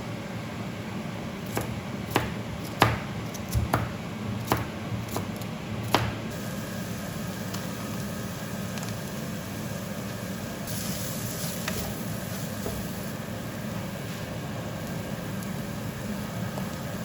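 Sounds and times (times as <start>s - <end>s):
appliance humming: 0.0s - 17.0s
hiss: 6.3s - 14.4s.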